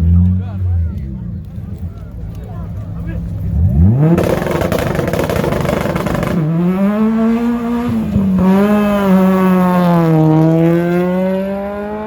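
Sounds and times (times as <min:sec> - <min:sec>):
car engine revving hard: 0:03.5 - 0:12.0.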